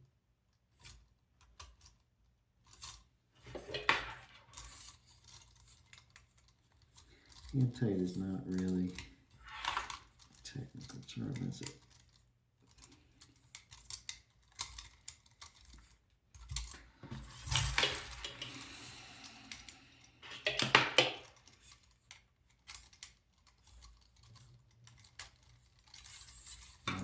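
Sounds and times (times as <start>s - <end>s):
hardware clicking and rattling: 3.4s - 27.0s
scraping rustle: 23.4s - 27.0s.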